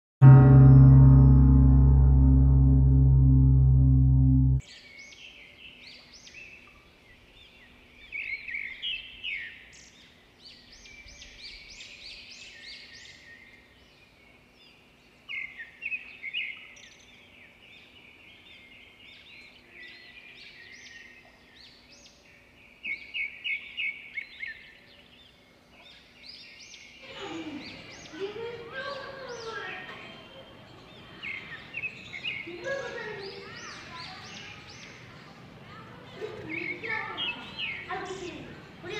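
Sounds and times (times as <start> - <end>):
small birds chirping: 27.7 - 38.9.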